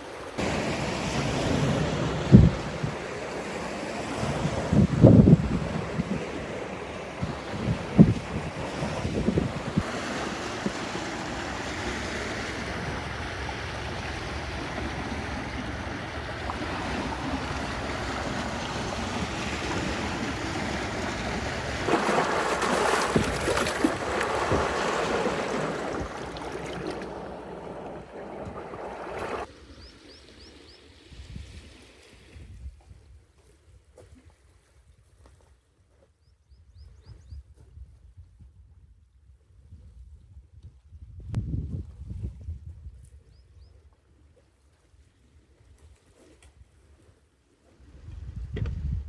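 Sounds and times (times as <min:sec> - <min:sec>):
water noise: 0:00.0 - 0:32.4
wind: 0:00.0 - 0:49.0.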